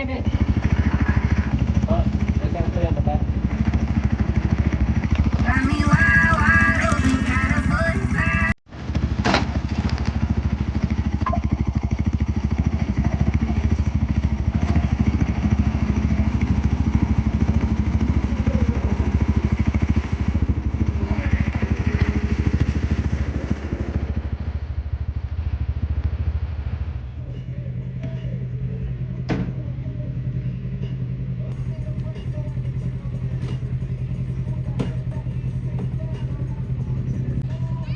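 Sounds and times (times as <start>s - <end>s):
small engine running: 0.0s - 8.6s, 31.6s - 37.9s.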